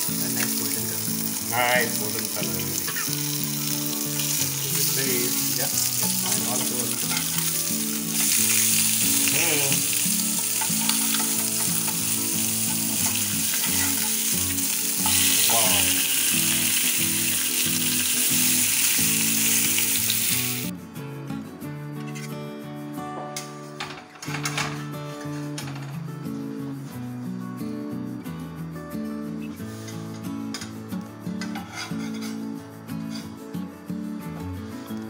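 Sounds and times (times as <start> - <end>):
fish sizzling in hot oil: 0.0 - 20.7
spatula scraping pan: 6.1 - 9.3, 10.2 - 15.4, 31.4 - 32.5, 33.1 - 33.3.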